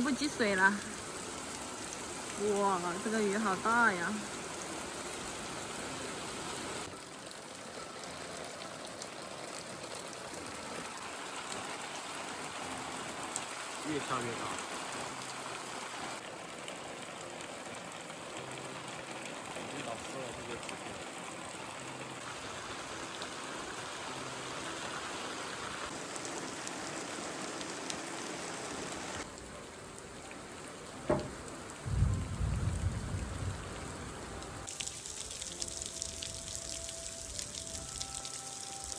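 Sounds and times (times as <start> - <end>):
heavy rain falling: 0.0 - 38.9
sharp knock: 31.0 - 31.4.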